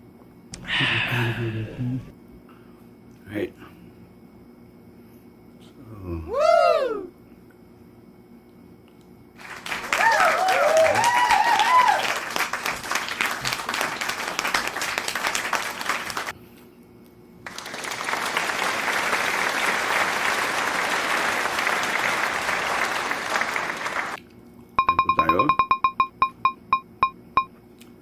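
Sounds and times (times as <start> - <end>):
cheering whoops: 6.2 - 7.1, 9.8 - 12.4
crowd applause: 9.4 - 16.3, 17.4 - 24.2.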